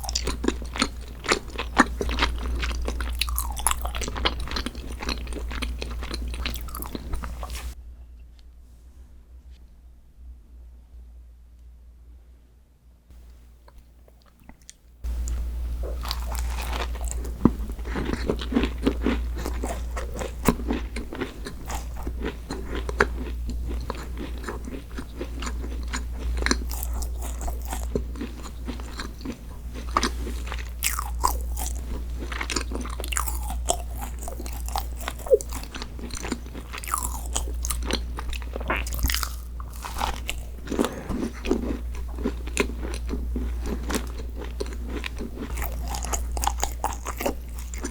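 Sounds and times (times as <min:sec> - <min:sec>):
crunchy bites and chewing: 0:00.0 - 0:07.8, 0:13.6 - 0:47.9
steady low hum: 0:00.0 - 0:47.9.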